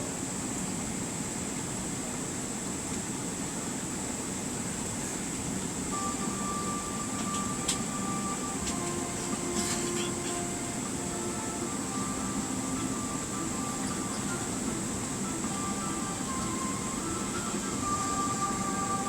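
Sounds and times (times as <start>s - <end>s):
constant high whine: 0.0s - 19.0s
aircraft cabin rumble: 6.0s - 19.0s
steady tones: 6.0s - 19.0s.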